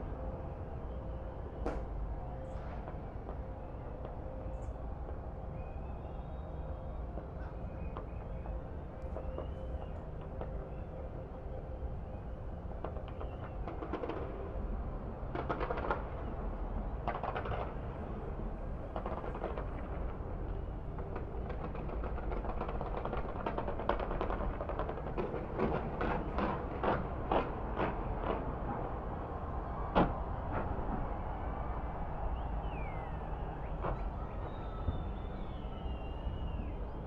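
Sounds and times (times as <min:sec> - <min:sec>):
crackling fireworks reports: 0:12.8 - 0:18.2, 0:18.8 - 0:29.2.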